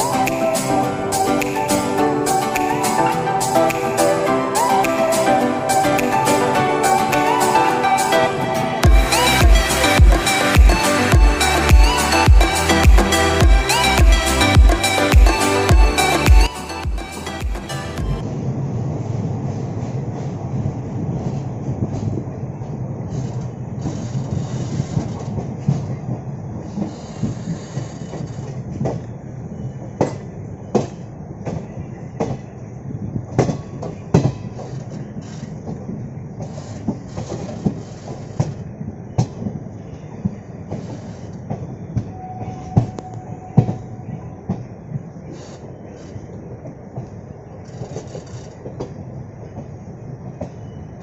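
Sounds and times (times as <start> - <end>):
train rumbling on track: 0.0 - 51.0
wheels clacking over rail joints: 0.0 - 51.0
short steady tone: 42.1 - 44.3.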